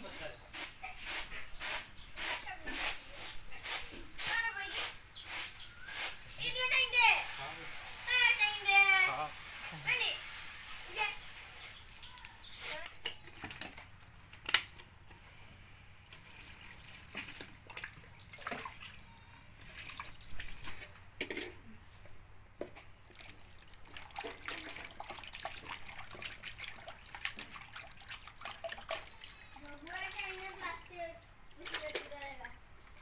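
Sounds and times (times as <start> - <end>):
water splashing and trickling: 4.3 - 14.2, 16.1 - 21.5, 22.7 - 33.0.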